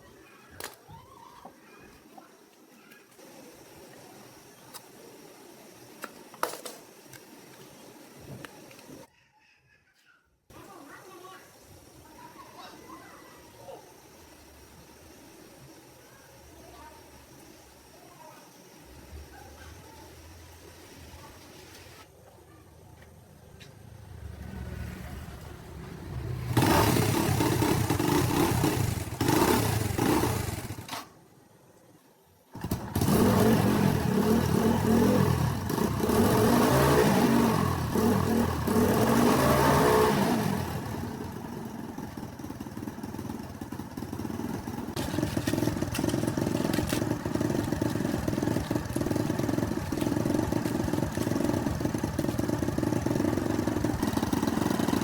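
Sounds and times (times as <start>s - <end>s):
tractor engine revving: 24.2s - 30.9s, 32.5s - 55.0s.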